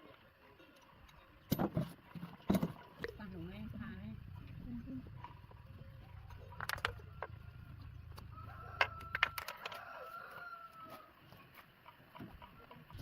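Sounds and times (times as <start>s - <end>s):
low hum: 3.0s - 10.0s
rooster crowing: 6.8s - 11.3s.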